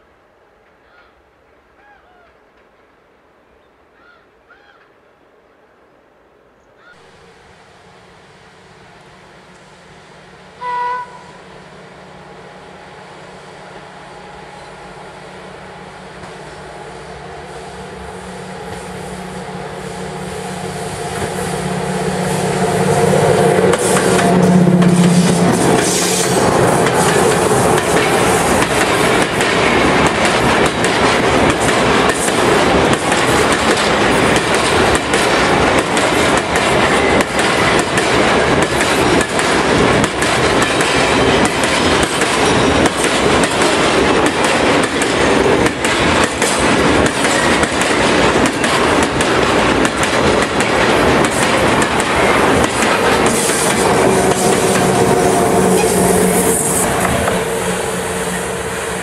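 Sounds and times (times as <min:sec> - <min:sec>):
freight train wheels clattering: 0:20.9 - 0:59.0
wheels clicking over rail joints: 0:23.7 - 0:55.0.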